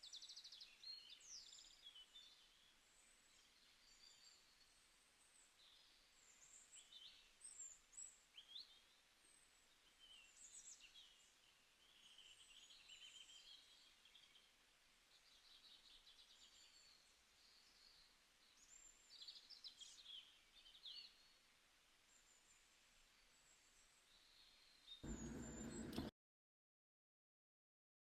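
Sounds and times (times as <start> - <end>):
small birds chirping and trilling: 15.1 - 21.3, 23.4 - 26.1
soft background hiss: 25.0 - 26.1.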